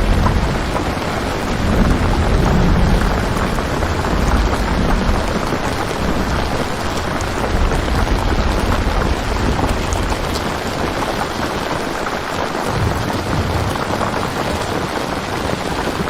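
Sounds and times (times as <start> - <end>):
low rumble: 0.0 - 11.4, 12.7 - 15.2
heavy rain: 0.0 - 16.0.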